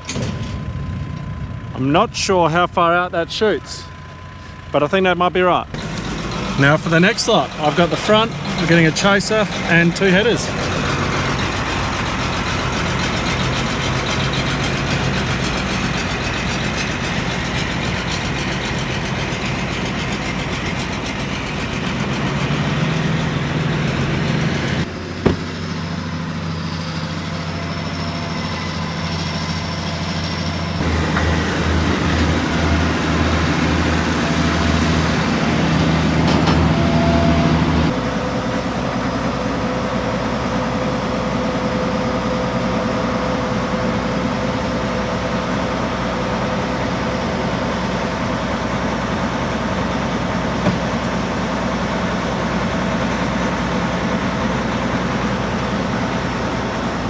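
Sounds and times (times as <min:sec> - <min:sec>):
heavy farm machinery engines: 0:00.0 - 0:57.0
sharp knock: 0:25.2 - 0:25.6.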